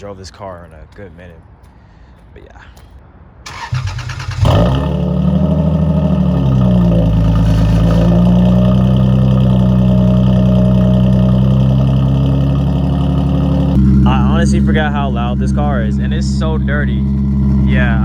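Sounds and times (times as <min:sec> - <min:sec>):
car engine cold start: 0:03.5 - 0:09.7
car engine fast idle: 0:03.5 - 0:18.0.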